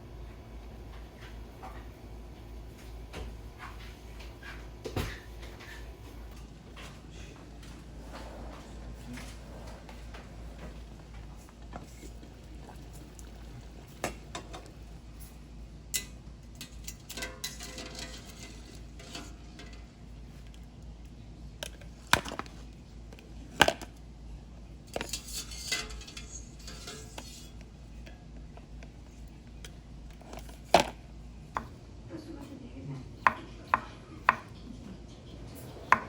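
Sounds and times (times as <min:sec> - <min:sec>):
dishes and utensils clinking: 0:02.8 - 0:20.0, 0:24.9 - 0:28.2.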